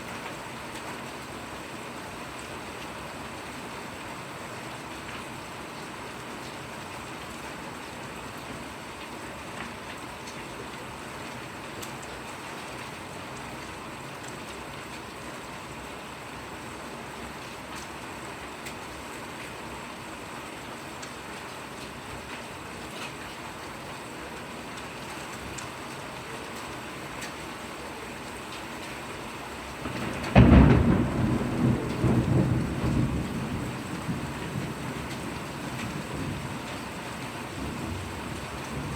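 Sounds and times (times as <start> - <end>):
steady rain: 0.0 - 38.9
thunder clap and rumble: 29.8 - 38.9.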